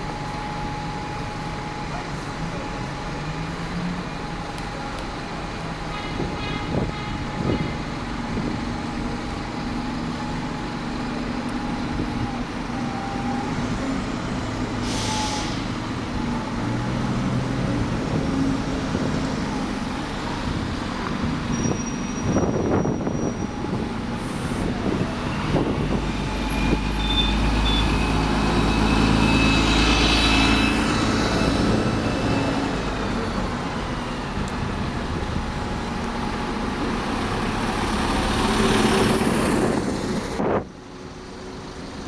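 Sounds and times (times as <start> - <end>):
diesel bus engine running: 0.0 - 42.0
air brake hiss: 14.8 - 15.8, 24.2 - 24.8.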